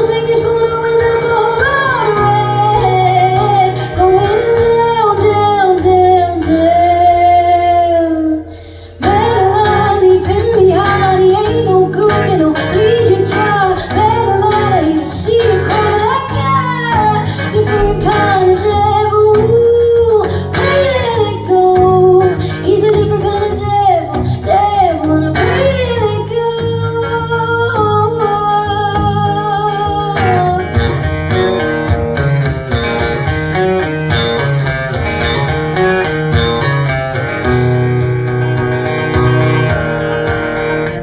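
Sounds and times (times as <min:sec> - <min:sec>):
woman singing: 0:00.0 - 0:31.1
live band with guitar: 0:00.0 - 0:41.0.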